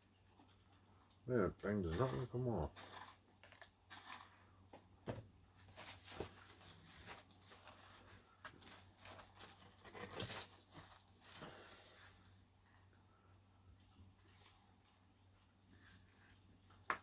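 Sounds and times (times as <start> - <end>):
small clicks and crackles: 0.1 - 4.4, 5.6 - 12.2
food packaging crinkling and tearing: 1.8 - 4.5, 5.6 - 12.2.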